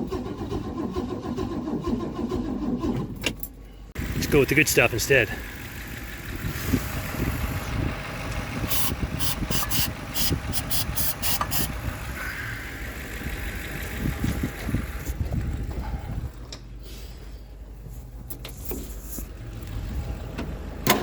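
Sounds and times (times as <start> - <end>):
starter cranking car engine: 0.0 - 3.4, 4.0 - 16.7.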